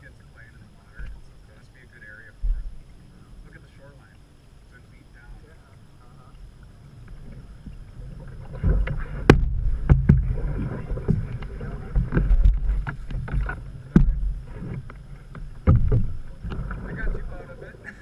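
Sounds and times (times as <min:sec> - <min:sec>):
low rumble: 0:00.0 - 0:03.9, 0:04.6 - 0:17.9
paddle strokes in water: 0:06.6 - 0:17.8
sharp knocks: 0:08.7 - 0:10.4, 0:11.0 - 0:16.6.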